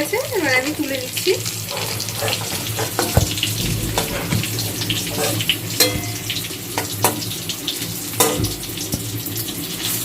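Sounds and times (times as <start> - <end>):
potatoes sizzling in hot oil: 0.0 - 10.0
utensil clicking against pan: 1.6 - 7.3.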